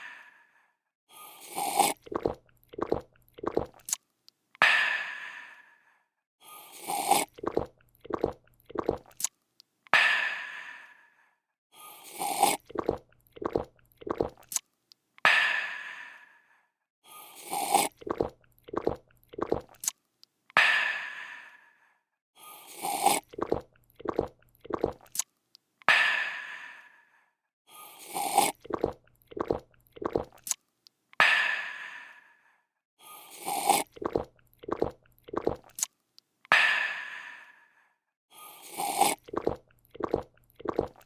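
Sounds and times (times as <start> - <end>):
person slurping a drink: 1.2 - 4.0, 6.6 - 9.3, 11.9 - 14.6, 17.2 - 20.0, 22.5 - 25.3, 27.8 - 30.6, 33.1 - 35.9, 38.4 - 41.0
quick gulps: 1.2 - 4.0, 6.7 - 9.3, 12.0 - 14.6, 17.3 - 20.0, 22.6 - 25.3, 28.0 - 30.6, 33.2 - 35.9, 38.5 - 41.0.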